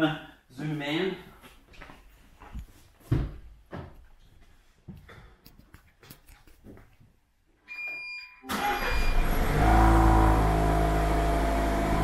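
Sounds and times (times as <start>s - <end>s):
car engine starting and idling: 8.5s - 12.0s.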